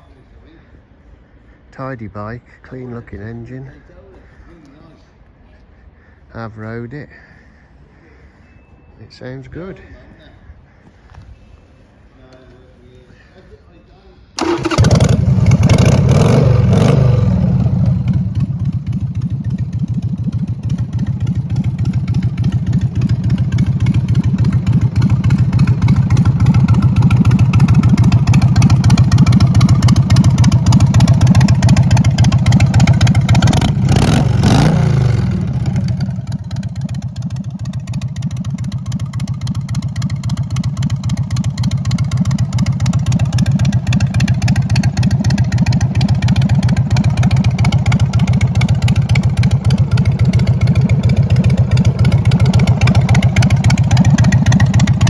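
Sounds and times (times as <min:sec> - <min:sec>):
motorcycle engine idling and revving: 0:14.4 - 0:55.0.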